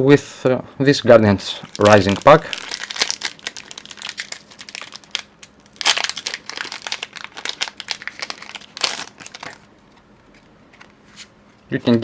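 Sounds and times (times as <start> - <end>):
plastic foil wrapper crinkling: 1.6 - 9.7.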